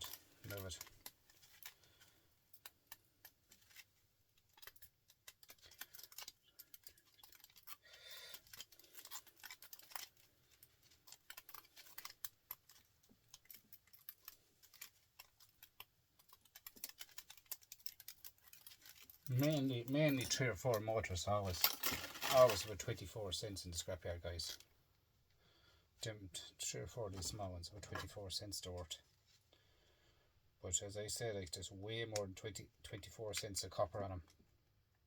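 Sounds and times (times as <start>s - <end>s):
wire clicks and scratches: 0.0s - 24.7s.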